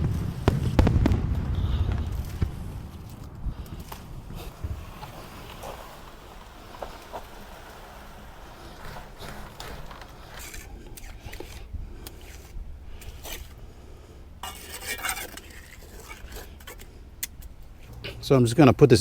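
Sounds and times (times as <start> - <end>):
metal tool scraping wet concrete: 3.9 - 18.3.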